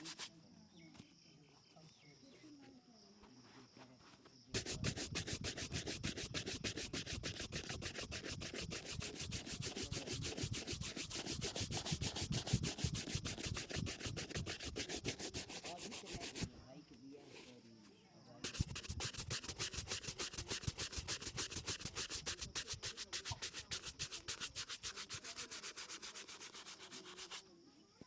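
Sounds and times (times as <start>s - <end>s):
brush buffing shoe: 0.0s - 0.3s, 4.5s - 16.5s, 18.4s - 27.5s.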